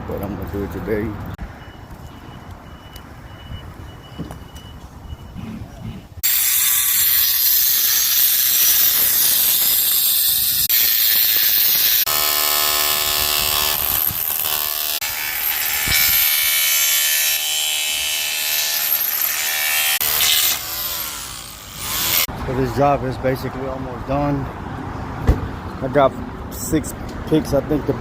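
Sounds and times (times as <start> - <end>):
metal fabrication tool noise: 6.2 - 22.3.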